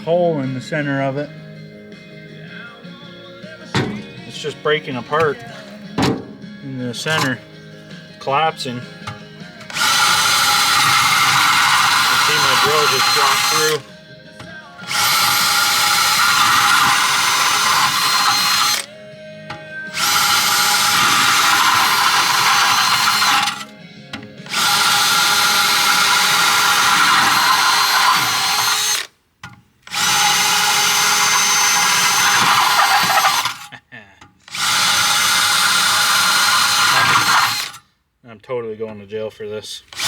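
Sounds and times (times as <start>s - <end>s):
power drill boring: 7.0s - 7.4s, 9.0s - 13.9s, 14.8s - 18.9s, 19.5s - 23.7s, 24.4s - 29.1s, 29.8s - 33.7s, 34.4s - 37.8s.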